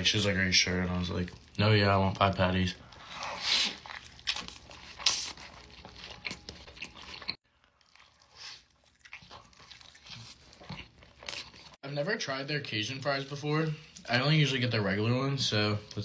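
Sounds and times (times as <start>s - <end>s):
person chewing crunchy food: 2.7s - 11.8s.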